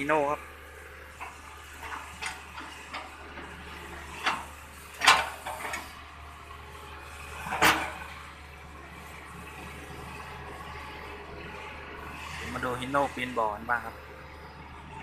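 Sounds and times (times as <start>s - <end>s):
low engine drone: 0.0s - 15.0s
heavy machinery clunks and thuds: 4.1s - 5.9s, 7.4s - 8.1s.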